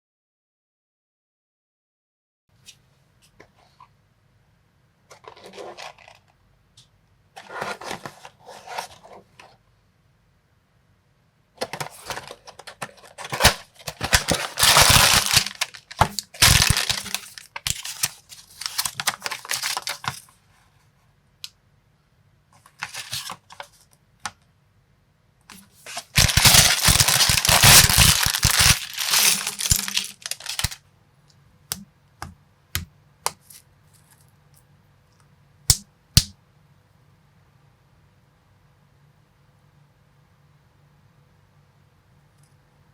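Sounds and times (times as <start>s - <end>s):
plastic blocks clicking and rattling: 11.9s - 18.0s, 26.1s - 30.8s.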